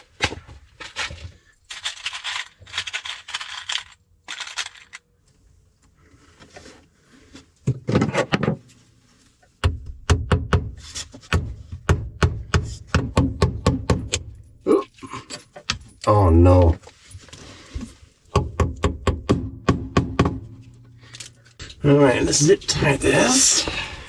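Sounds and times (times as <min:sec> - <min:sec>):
rustling and scraping: 0:00.0 - 0:09.6, 0:10.8 - 0:11.3, 0:16.6 - 0:18.3.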